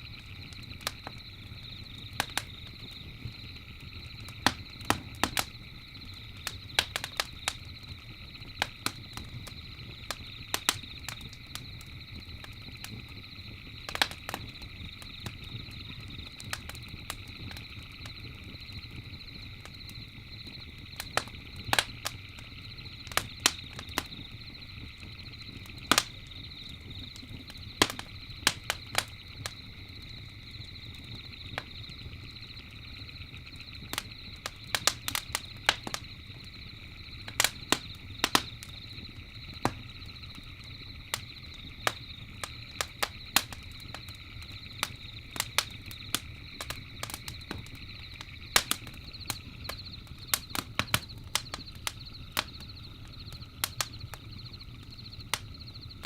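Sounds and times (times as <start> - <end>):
campfire crackling: 0.0 - 56.0
low rumble of flames: 0.0 - 56.0
night insects chirring: 0.0 - 56.0.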